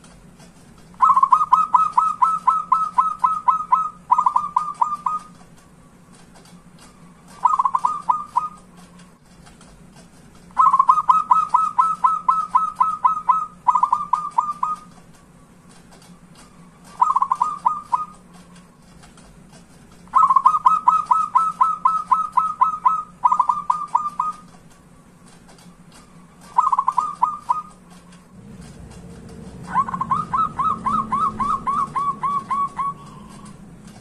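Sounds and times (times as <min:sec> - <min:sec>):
small birds chirping: 0:00.9 - 0:09.2, 0:10.4 - 0:18.9, 0:20.0 - 0:33.9
dove cooing: 0:01.0 - 0:05.4, 0:07.2 - 0:08.7, 0:10.6 - 0:14.9, 0:16.8 - 0:18.2, 0:20.1 - 0:24.5, 0:26.4 - 0:27.8, 0:29.4 - 0:33.6.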